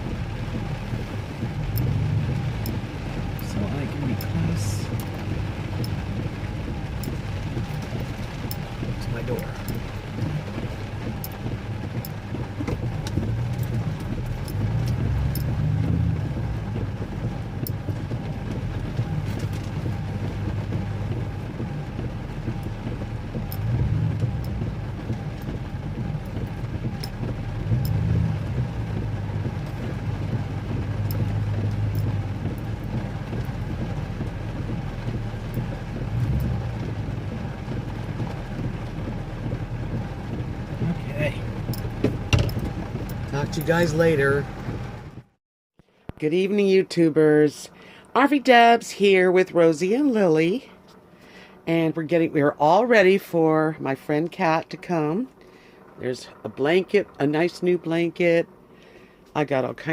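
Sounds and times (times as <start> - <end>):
vehicle engine revving at low speed: 0.0 - 46.0
faint ticks: 1.4 - 3.6, 22.5 - 30.4.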